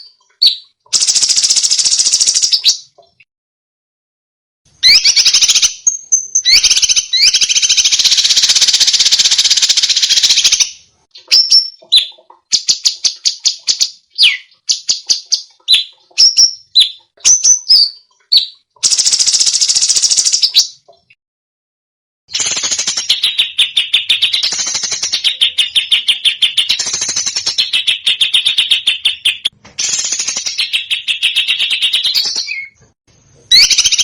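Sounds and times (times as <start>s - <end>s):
bird chips and falling whistles: 0.0s - 2.9s, 4.8s - 20.8s, 22.3s - 28.6s, 29.8s - 32.8s, 33.5s - 34.0s
songbird trilling: 4.8s - 19.2s, 33.5s - 34.0s.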